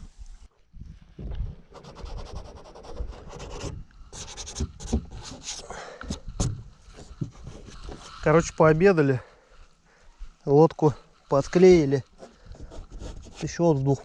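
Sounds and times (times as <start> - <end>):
scraping on inflatable boat hull: 3.3 - 8.5, 11.5 - 14.0.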